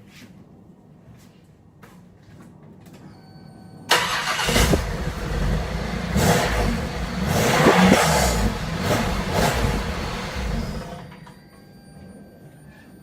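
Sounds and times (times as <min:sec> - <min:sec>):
brief beep: 0:03.0 - 0:03.9, 0:11.0 - 0:13.0
car engine starting and revving: 0:03.9 - 0:11.1.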